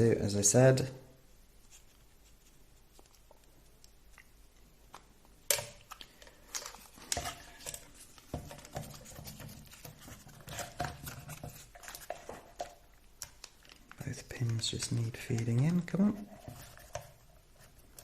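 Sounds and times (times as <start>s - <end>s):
plastic parts clicking and rattling: 4.9s - 18.0s.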